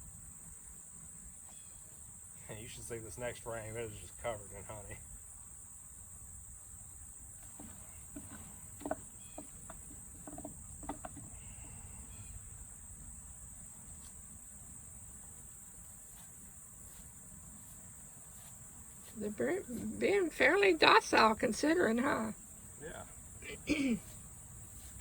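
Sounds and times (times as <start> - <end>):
crickets chirring: 0.0 - 25.0
wooden hive frame knocks and scrapes: 7.4 - 11.8.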